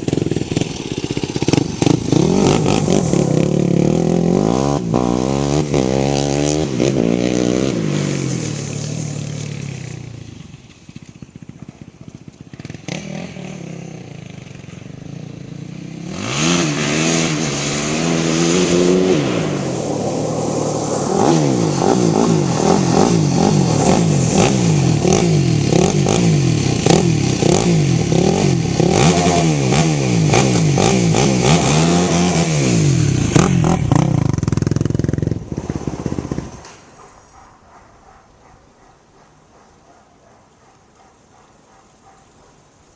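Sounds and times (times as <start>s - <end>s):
quad bike engine revving: 0.0s - 37.4s.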